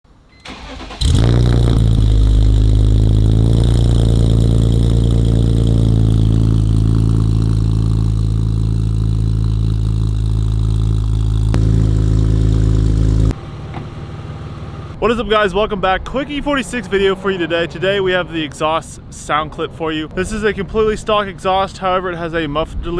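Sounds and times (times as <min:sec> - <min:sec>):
car engine starting and idling: 0:00.4 - 0:15.2.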